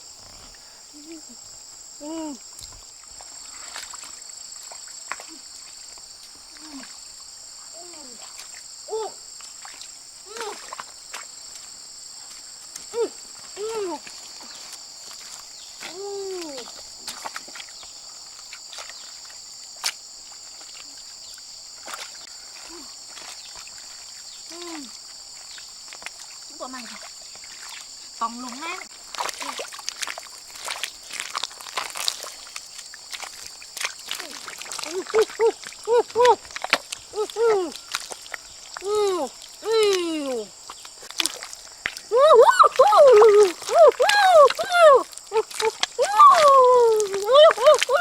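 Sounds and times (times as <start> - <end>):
insects chirring: 0.0 - 48.0
woman's short vocal sounds: 2.0 - 2.4, 37.2 - 37.8, 38.8 - 40.5, 42.1 - 48.0.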